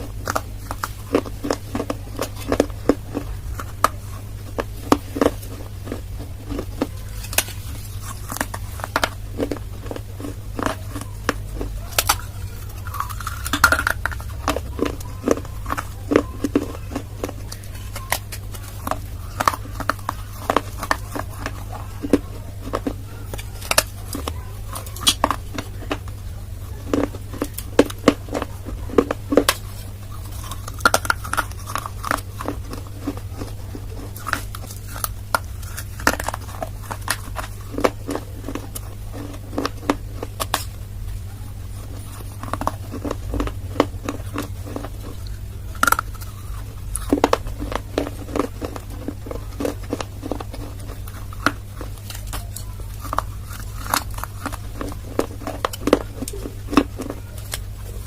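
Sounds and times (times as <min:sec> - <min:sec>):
crunchy chewing: 0:00.0 - 0:58.0
steady low hum: 0:00.0 - 0:58.0.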